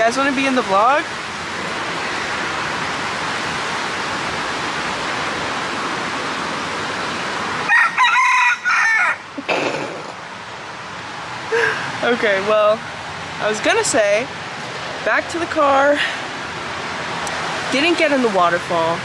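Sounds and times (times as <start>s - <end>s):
rooster crowing: 7.6s - 9.3s.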